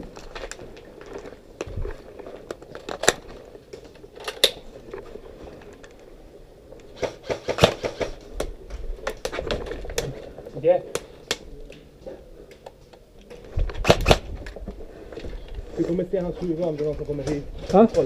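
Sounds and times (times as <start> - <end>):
airsoft gun shots: 7.0 - 8.2, 13.8 - 14.3.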